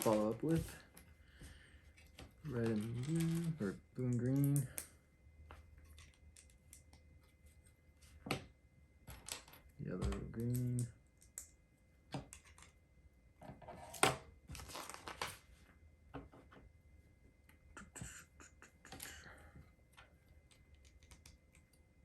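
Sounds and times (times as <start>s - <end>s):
plastic pieces rustling and rattling: 0.0s - 0.7s, 2.0s - 4.7s, 14.5s - 15.4s.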